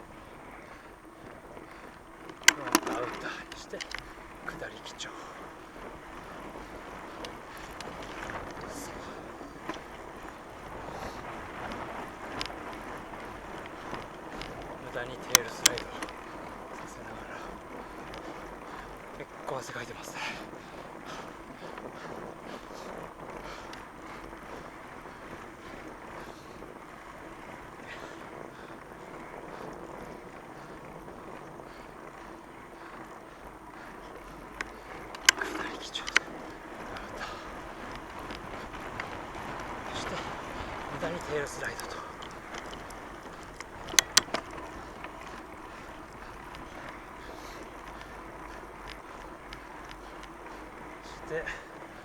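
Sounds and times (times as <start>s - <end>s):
bike tyres rushing: 0.0s - 52.0s
sharp clacks: 2.3s - 4.6s, 13.9s - 16.2s, 34.6s - 44.9s.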